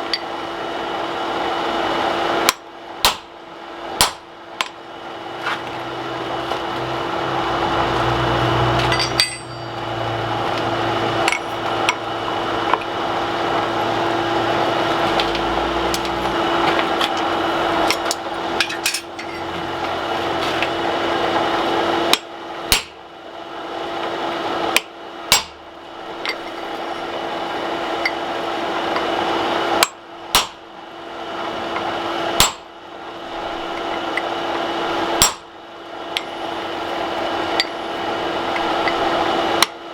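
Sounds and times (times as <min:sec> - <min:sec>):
steady hum and rush: 0:00.0 - 0:39.9
hammer striking steel on anvil: 0:02.5 - 0:03.3, 0:04.0 - 0:04.8, 0:08.7 - 0:12.0, 0:22.1 - 0:23.0, 0:24.8 - 0:25.6, 0:29.8 - 0:30.6, 0:32.4 - 0:32.7, 0:35.2 - 0:35.5.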